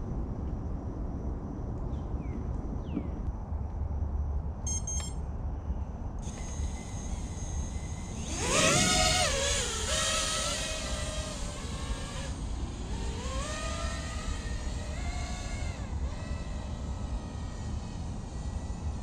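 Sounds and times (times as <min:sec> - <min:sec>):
wind rumble on microphone: 0:00.0 - 0:04.7
drone motors whining: 0:06.2 - 0:19.0.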